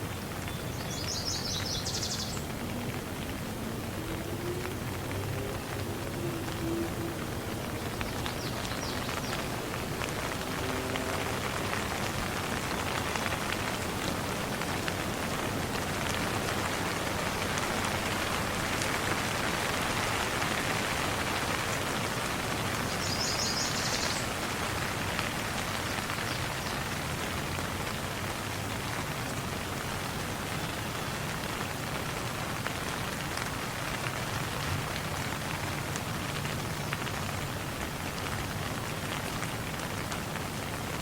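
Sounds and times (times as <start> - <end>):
rain pattering on surfaces: 0.0 - 41.0.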